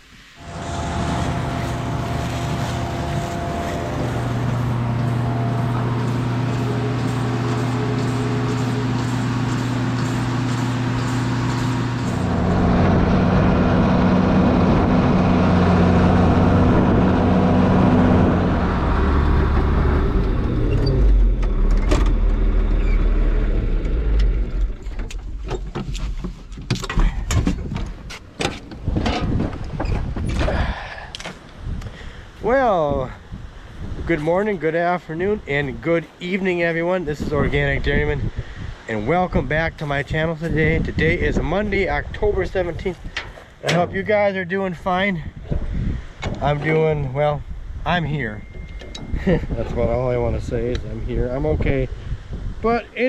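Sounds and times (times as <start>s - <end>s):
vehicle engine running: 0.4s - 25.4s
clicks and knocks: 48.4s - 49.2s.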